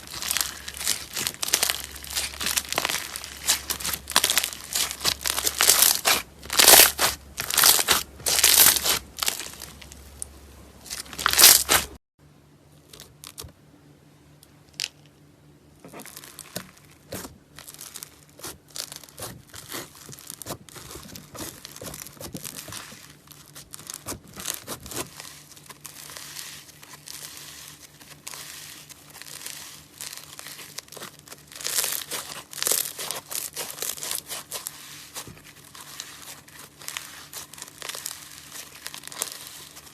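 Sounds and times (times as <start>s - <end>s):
slime squeezed and crackling: 0.0s - 12.0s, 16.0s - 39.9s.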